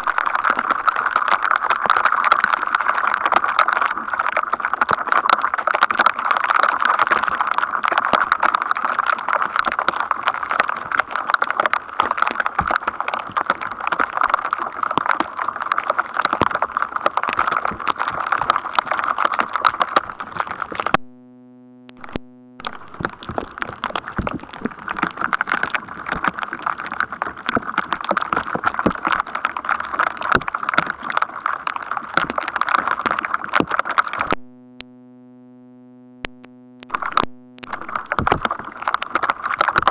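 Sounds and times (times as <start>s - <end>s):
electrostatic crackle: 0.0s - 39.9s
low steady tone: 34.4s - 38.2s.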